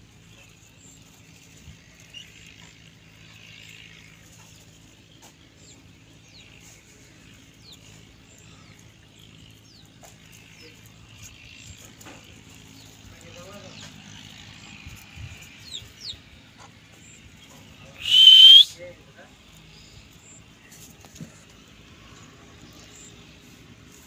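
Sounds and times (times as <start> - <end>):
high bird chirps: 18.0 - 18.6.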